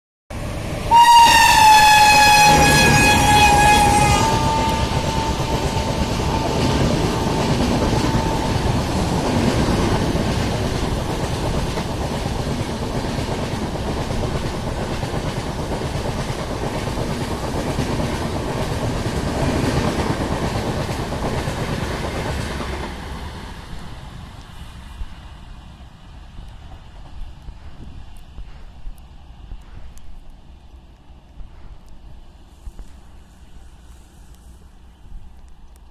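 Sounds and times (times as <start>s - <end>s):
train horn: 0.8s - 8.9s
train wheels clattering over rails: 0.9s - 24.0s.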